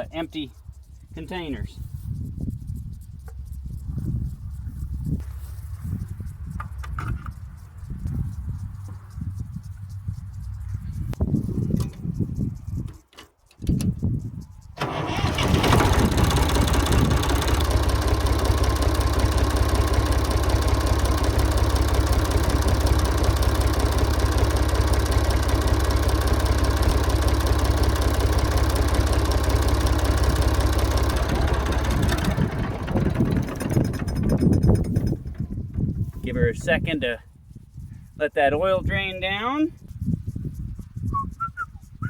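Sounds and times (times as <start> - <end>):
tractor engine starting and idling: 14.7 - 37.2.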